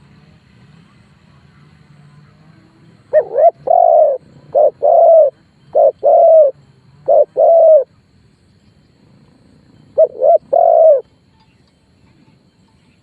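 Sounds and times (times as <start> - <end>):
dove cooing: 3.1 - 7.9, 9.8 - 11.0.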